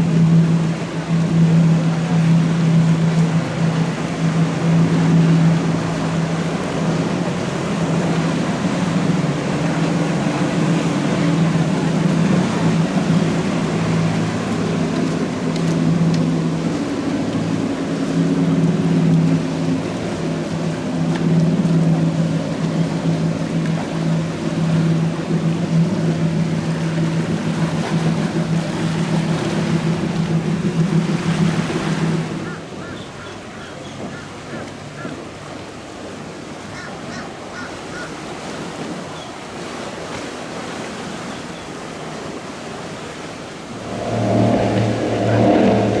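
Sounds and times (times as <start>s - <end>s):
powerboat engines droning: 0.0s - 46.0s
water rushing under hull: 0.0s - 46.0s
wind noise: 43.7s - 46.0s.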